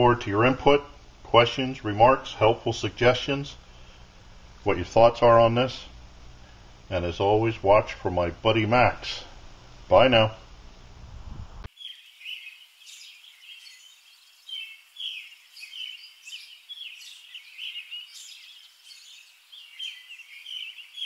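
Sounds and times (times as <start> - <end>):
small birds chirping: 11.7 - 21.0.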